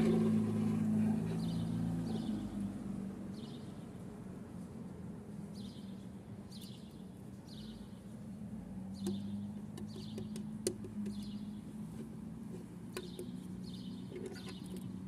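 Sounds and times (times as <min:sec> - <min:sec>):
bird chirping: 0:05.5 - 0:08.2, 0:08.9 - 0:11.8, 0:12.9 - 0:15.0.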